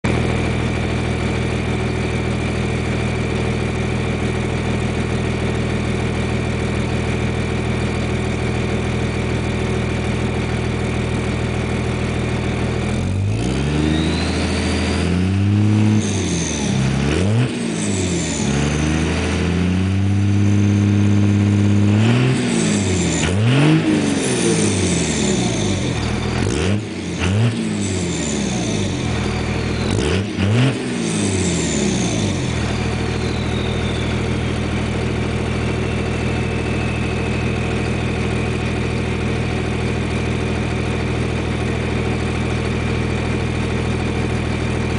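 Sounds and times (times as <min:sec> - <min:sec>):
diesel engine idling and revving: 0:00.0 - 0:44.9
high turbo whistle: 0:31.2 - 0:38.5.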